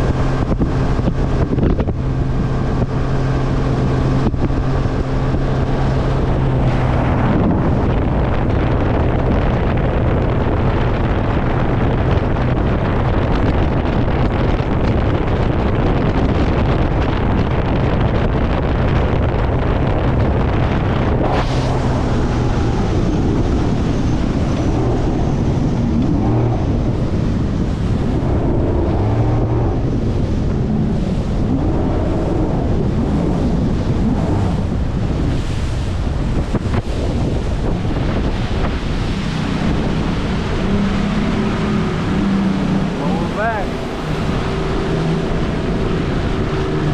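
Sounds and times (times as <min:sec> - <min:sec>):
waves washing: 0:00.0 - 0:09.4, 0:20.8 - 0:46.9
low motor hum: 0:00.0 - 0:46.9
wind buffeting microphone: 0:00.0 - 0:46.9.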